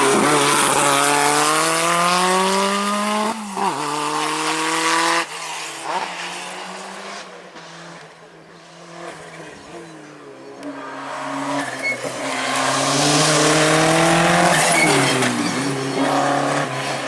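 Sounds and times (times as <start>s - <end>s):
rally car engine accelerating: 0.0s - 17.0s.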